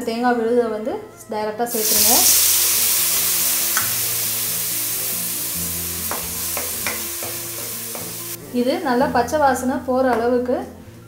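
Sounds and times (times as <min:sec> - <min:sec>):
paste sizzling in hot oil: 0:01.7 - 0:08.4
spatula knocking in pan: 0:06.0 - 0:08.3.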